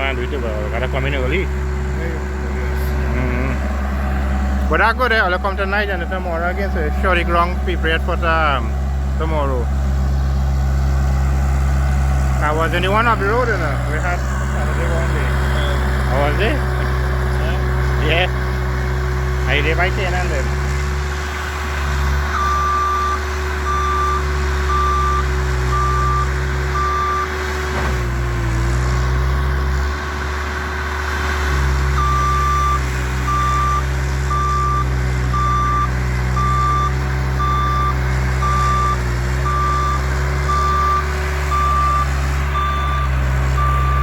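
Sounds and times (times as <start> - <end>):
diesel engine running: 0.0 - 44.0
reversing alarm beeping: 22.2 - 27.4, 31.8 - 44.0.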